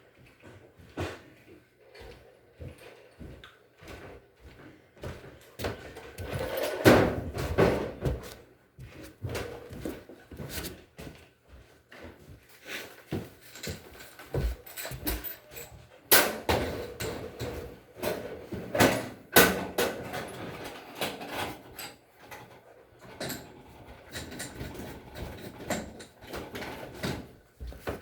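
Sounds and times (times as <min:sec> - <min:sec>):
knocks and clunks of tools: 0:13.6 - 0:20.4.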